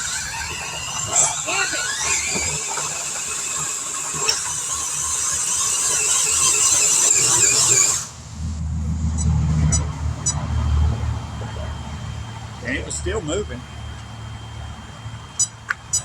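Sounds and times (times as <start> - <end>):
electric motor whining under load: 0.0 - 16.0
low rumble: 7.6 - 16.0.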